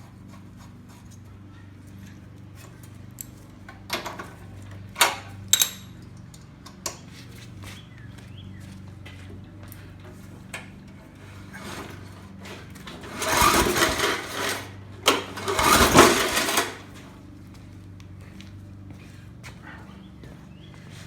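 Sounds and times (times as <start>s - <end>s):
engine whirring on recoil start: 10.1s - 17.2s.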